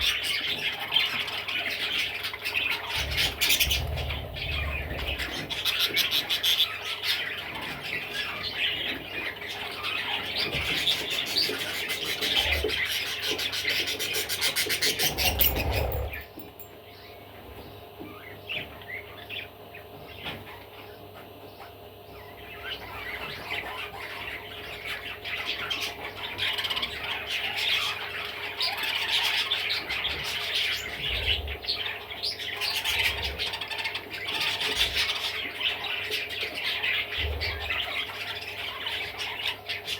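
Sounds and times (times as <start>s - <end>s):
budgerigar chattering and chirping: 0.0s - 16.2s.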